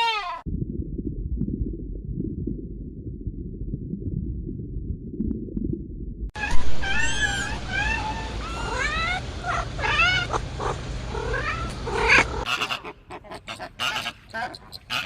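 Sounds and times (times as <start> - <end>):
animal high pitched calls: 6.4 - 10.4.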